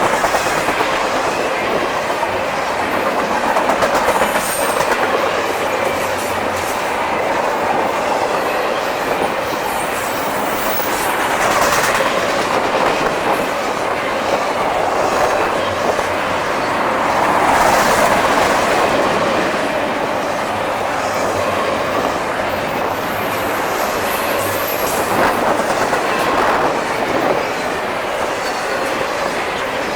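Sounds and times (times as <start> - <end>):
freight train wheels rumbling on rails: 0.0 - 29.9
wheels clacking over rail joints: 0.0 - 29.9
high wheel squeals: 8.3 - 11.4.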